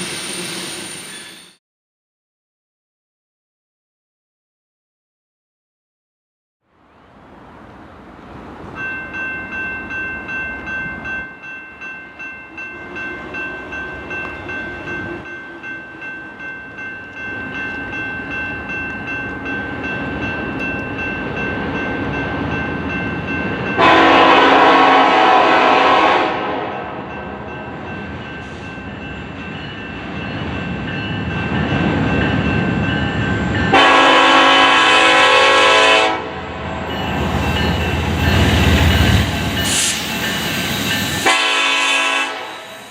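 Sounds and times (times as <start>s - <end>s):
freight train rumbling: 0.0s - 1.6s, 6.8s - 42.9s
train horn blasts: 23.8s - 27.2s, 33.7s - 36.6s, 41.2s - 42.9s
bell ringing: 36.9s - 41.3s.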